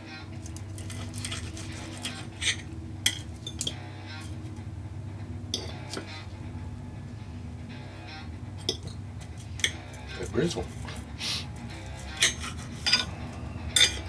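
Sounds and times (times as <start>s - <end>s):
steady low hum: 0.0s - 14.0s
knife and fork clinking on plate: 13.8s - 14.0s.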